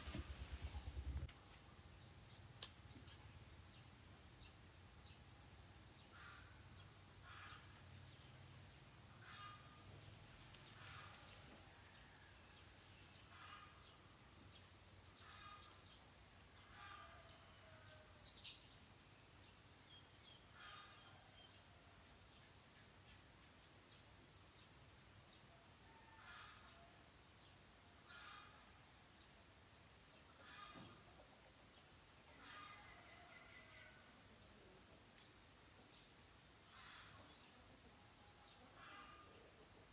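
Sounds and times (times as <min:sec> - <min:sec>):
insects rapid pulsing chirp: 0:00.0 - 0:16.0
high insect hum: 0:00.0 - 0:39.9.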